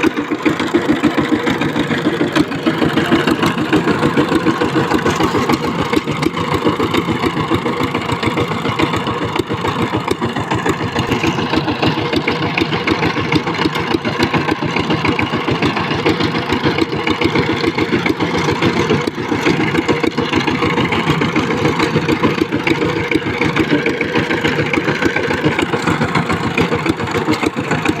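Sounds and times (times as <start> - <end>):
tiller engine idling: 0.0 - 28.0.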